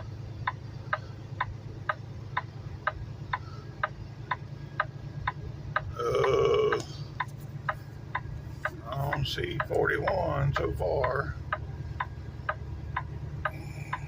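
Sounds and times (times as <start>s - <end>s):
truck engine humming: 0.0s - 14.0s
turn signal clicking: 0.0s - 14.0s.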